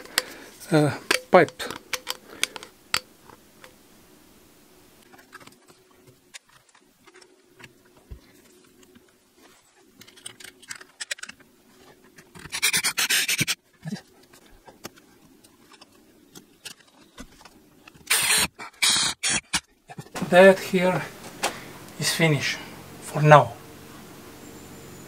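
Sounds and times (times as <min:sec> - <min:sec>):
small clicks and scrapes: 0:00.0 - 0:03.8, 0:05.0 - 0:20.2
loud rasping burst: 0:18.0 - 0:19.6.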